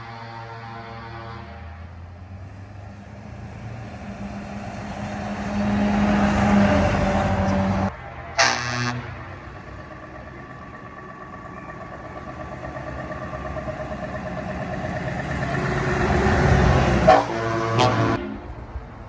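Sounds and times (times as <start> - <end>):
truck horn blast: 0.0 - 2.2, 4.4 - 9.4, 15.5 - 18.7
truck engine running: 2.1 - 19.0.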